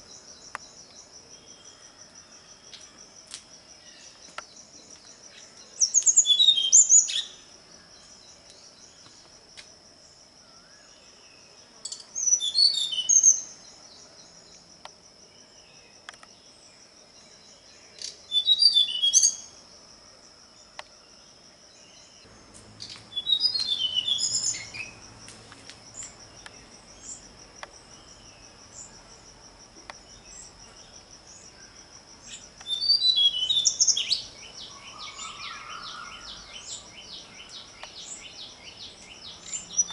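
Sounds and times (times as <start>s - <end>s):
high-pitched insect trill: 0.0s - 39.9s
songbird twittering: 3.8s - 9.2s, 11.8s - 14.6s, 17.4s - 19.6s, 21.9s - 25.1s, 30.0s - 39.9s.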